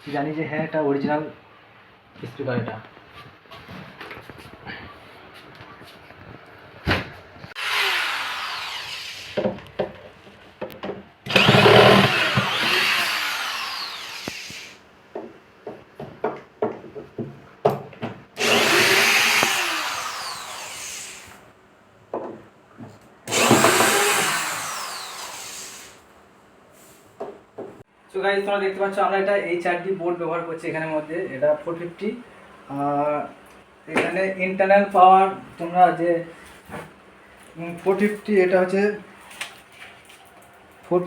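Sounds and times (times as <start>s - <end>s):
electric drill running: 7.6s - 9.4s, 11.3s - 14.8s, 18.4s - 21.4s, 23.3s - 26.0s.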